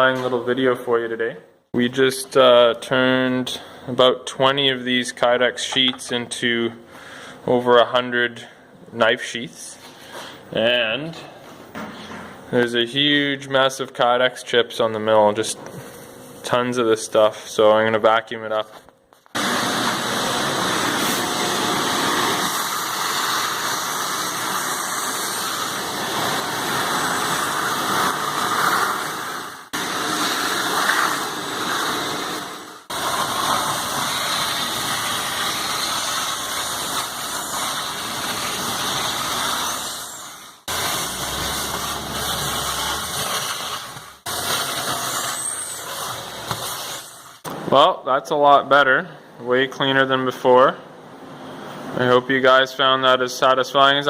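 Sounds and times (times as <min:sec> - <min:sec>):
shop vac running: 0:09.5 - 0:48.0.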